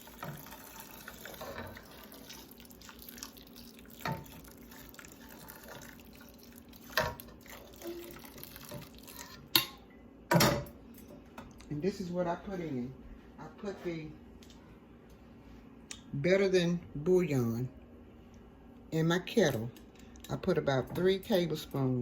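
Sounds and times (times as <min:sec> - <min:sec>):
liquid trickling into pan: 0:00.0 - 0:09.5.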